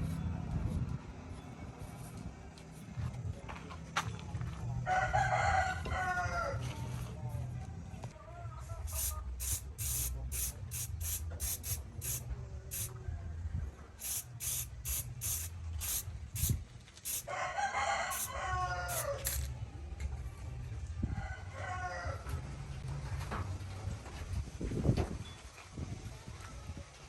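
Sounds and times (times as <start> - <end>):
rooster crowing: 4.8 - 6.8, 17.1 - 19.4, 21.1 - 22.4.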